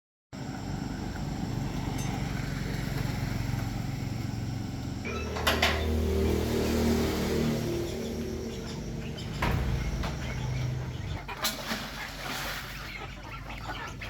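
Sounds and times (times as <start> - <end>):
small engine running: 0.4 - 11.3.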